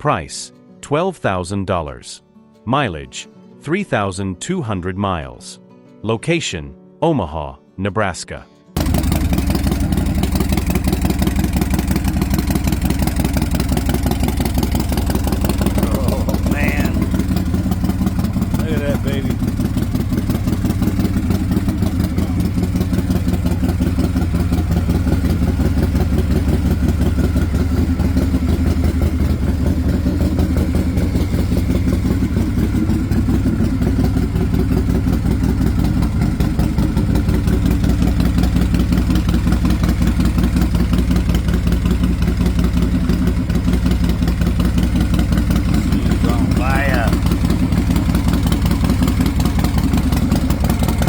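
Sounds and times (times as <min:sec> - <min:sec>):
motorcycle engine idling: 0:08.8 - 0:51.0.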